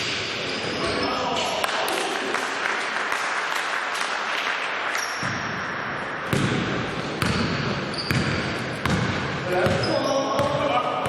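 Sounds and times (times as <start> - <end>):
basketball bouncing on hardwood court: 5.2 - 5.5, 6.2 - 11.0.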